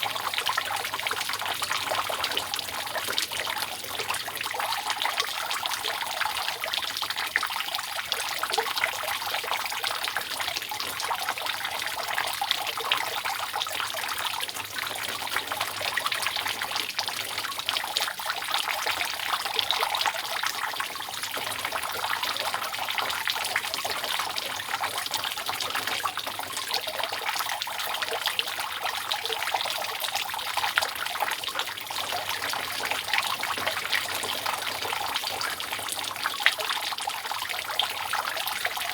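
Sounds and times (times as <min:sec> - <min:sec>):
rainwater dripping off roof: 0:00.0 - 0:38.9.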